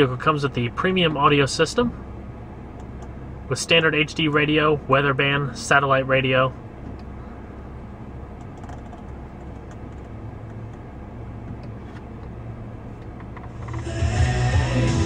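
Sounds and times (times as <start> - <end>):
car cabin rumble: 0.0 - 15.0
music from car audio: 13.2 - 15.0.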